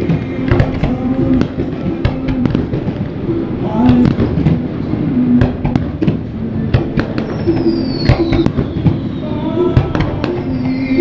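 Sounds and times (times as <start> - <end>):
fireworks bangs and crackles: 0.0 - 11.0
descending firework whistle: 6.9 - 11.0.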